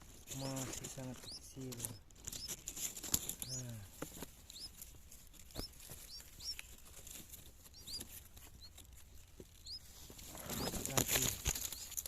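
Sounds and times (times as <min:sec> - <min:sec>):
nestlings begging cheeps: 0:00.2 - 0:12.0.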